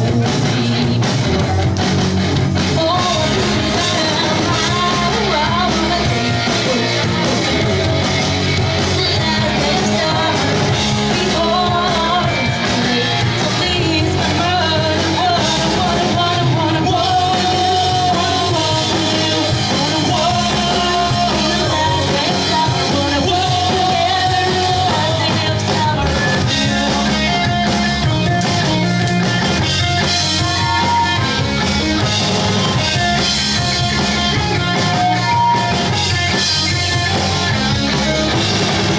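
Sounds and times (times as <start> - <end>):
bass: 0.0 - 38.9
distorted electric guitars: 0.0 - 38.9
drums: 0.0 - 38.9
sung vocal: 2.6 - 28.9, 29.6 - 32.1.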